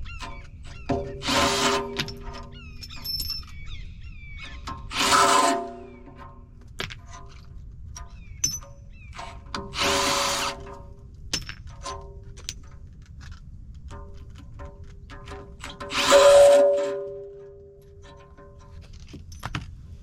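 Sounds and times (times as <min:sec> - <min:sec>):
metal clinks and knocks: 0:00.0 - 0:03.7, 0:04.5 - 0:09.7, 0:10.9 - 0:19.8.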